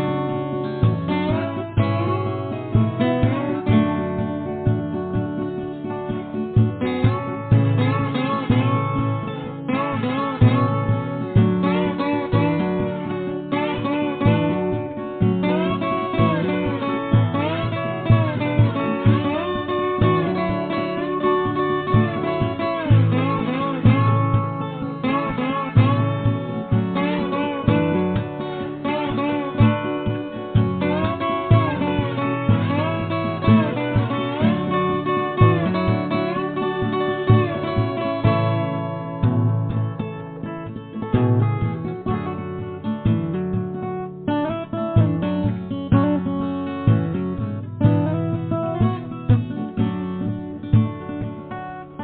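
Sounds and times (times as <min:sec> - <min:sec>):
acoustic guitar strumming rhythm: 0:00.0 - 0:52.0
bending lead melody: 0:00.0 - 0:52.0.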